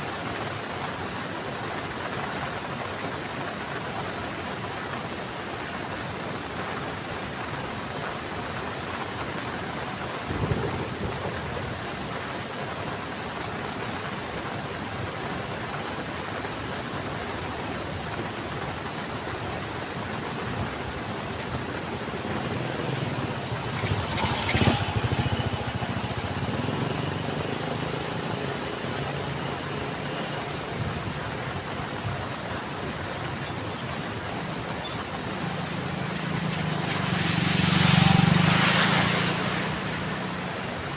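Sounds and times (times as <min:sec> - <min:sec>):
heavy rain falling: 0:21.0 - 0:40.9
vehicle engine hum: 0:21.8 - 0:32.0, 0:33.3 - 0:40.9
loud clatter: 0:23.1 - 0:27.3.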